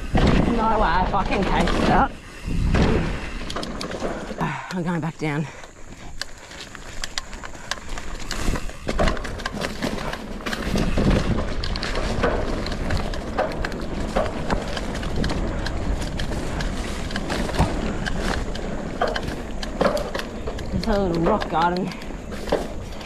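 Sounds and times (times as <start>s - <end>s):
bike tyres rolling on dirt: 0.0s - 23.0s
bike clattering knocks: 7.2s - 23.0s.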